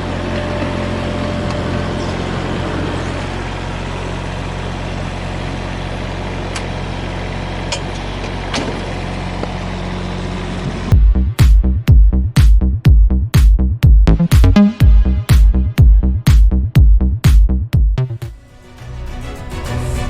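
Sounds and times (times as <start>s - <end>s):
excavator diesel engine idling: 0.0s - 12.1s.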